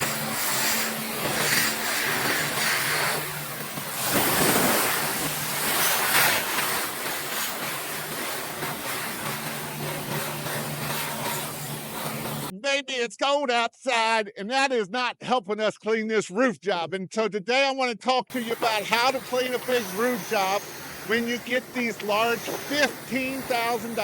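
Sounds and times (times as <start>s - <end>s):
hiss of spraying water: 0.0s - 12.5s, 18.3s - 24.0s
pressure washer engine hum: 0.0s - 12.5s, 18.3s - 24.0s.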